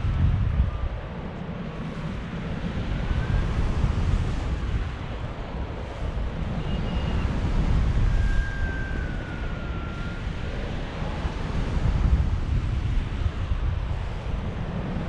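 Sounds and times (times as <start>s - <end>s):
wind buffeting microphone: 0.0s - 15.0s
faint gliding whistling tones: 0.7s - 11.9s.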